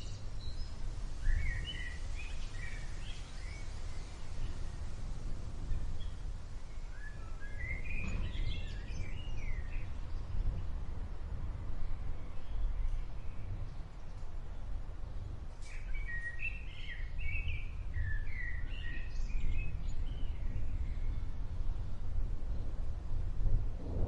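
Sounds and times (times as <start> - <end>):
small birds chirping: 0.0 - 21.9
steady low rumble: 19.1 - 24.0.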